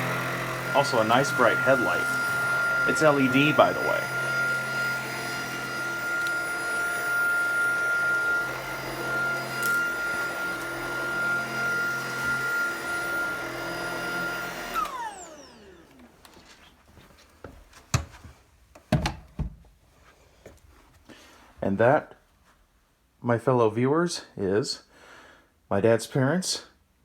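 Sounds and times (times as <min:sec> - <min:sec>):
stick vacuum whining: 0:00.0 - 0:16.8.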